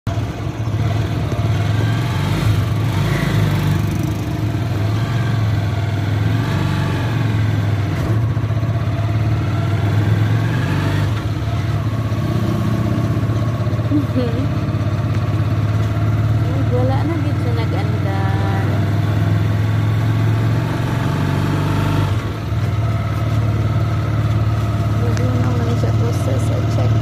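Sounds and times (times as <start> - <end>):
motorcycle engine running: 0.0 - 27.0
road noise: 0.0 - 27.0.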